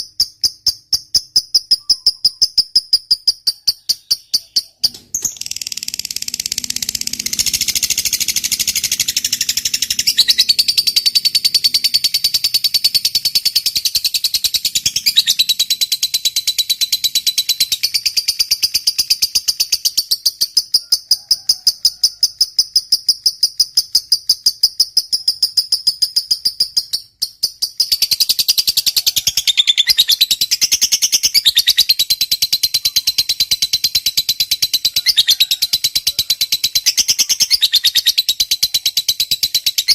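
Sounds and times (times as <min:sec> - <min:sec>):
lovebird chattering: 0:00.0 - 0:20.8, 0:22.4 - 0:39.9.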